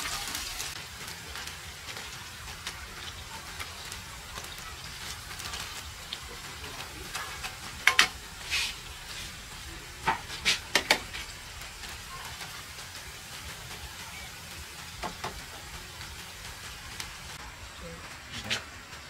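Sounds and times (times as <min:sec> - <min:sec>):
food sizzling in oil: 0:00.0 - 0:19.0
utensil clacking against pan: 0:07.1 - 0:08.2, 0:10.0 - 0:11.2.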